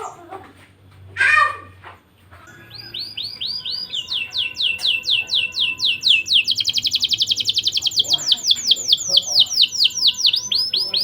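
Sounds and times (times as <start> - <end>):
canary singing: 2.4 - 11.0.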